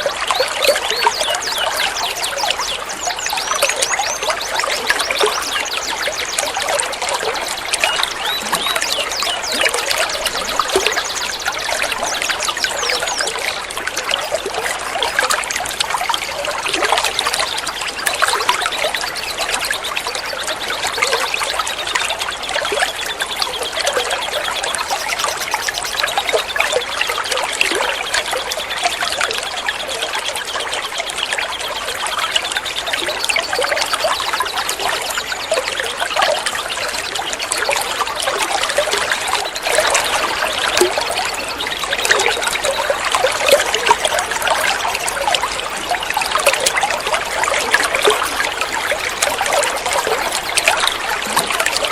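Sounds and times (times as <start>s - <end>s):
small birds chirping: 0.0s - 51.9s
water trickling: 0.0s - 51.9s.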